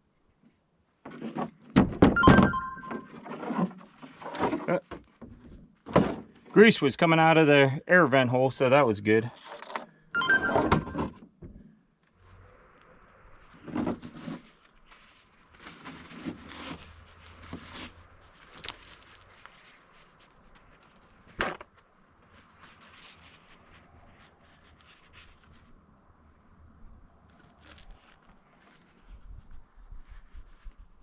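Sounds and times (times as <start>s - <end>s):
objects being handled: 0.9s - 6.5s, 13.5s - 25.8s, 27.2s - 29.4s.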